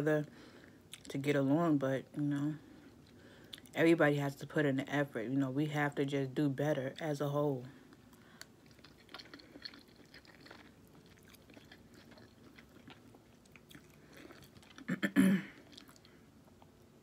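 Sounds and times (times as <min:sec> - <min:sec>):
person chewing food: 0:02.7 - 0:03.8, 0:07.9 - 0:17.0.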